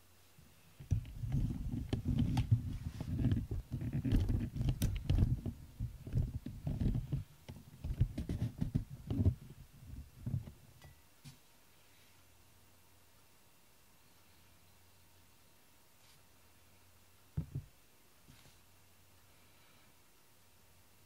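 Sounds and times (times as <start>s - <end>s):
microphone handling noise on fabric: 0.8s - 10.6s, 17.4s - 17.7s.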